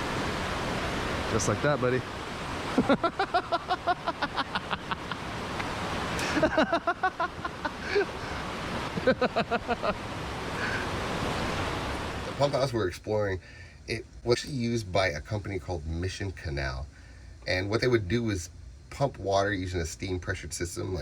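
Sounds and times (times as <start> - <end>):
river water rushing: 0.0 - 12.7.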